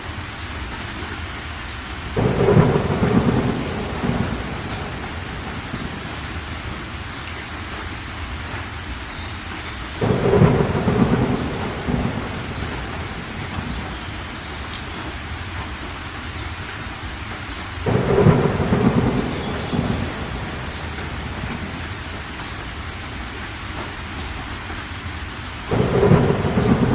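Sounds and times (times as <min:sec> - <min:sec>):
steady rain: 0:00.0 - 0:26.9
thunder rumbling: 0:02.1 - 0:07.0, 0:10.0 - 0:15.7, 0:17.8 - 0:24.5, 0:25.6 - 0:26.9.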